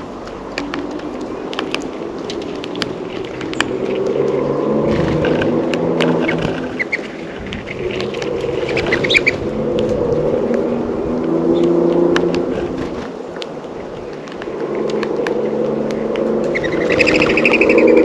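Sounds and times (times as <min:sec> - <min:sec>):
road traffic rumble: 0:00.0 - 0:18.0
bird chirping: 0:06.2 - 0:09.5, 0:16.5 - 0:18.0.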